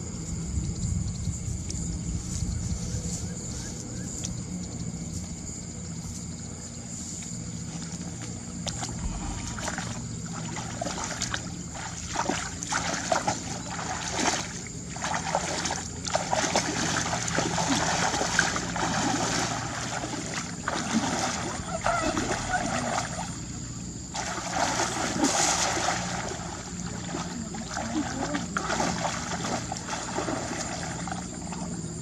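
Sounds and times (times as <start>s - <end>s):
steady low hum: 0.0s - 32.0s
water splashing and sloshing: 7.1s - 32.0s.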